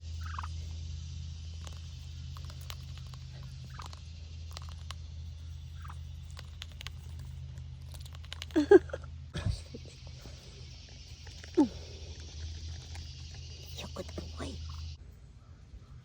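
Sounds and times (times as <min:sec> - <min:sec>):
steady low hum: 0:00.0 - 0:16.0
duck bill nibbling clicks: 0:01.6 - 0:08.7.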